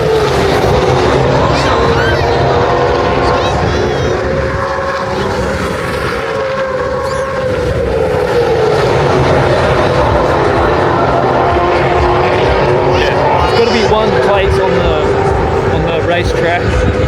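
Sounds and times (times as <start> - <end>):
race car engines droning: 0.0 - 17.0
race car passing by: 0.0 - 17.0.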